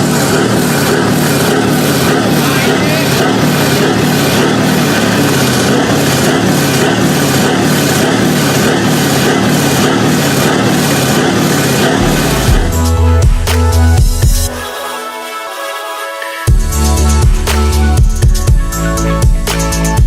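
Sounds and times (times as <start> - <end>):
heavy truck engine running: 0.0 - 14.6.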